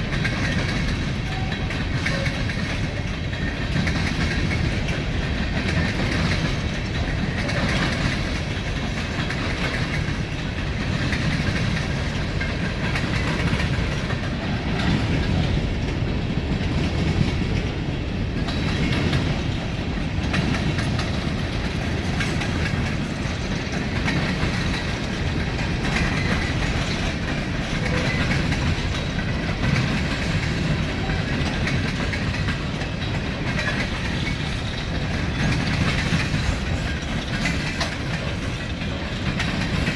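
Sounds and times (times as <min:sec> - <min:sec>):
train rumbling: 0:00.0 - 0:39.9
wheel-on-rail clatter: 0:00.0 - 0:39.9.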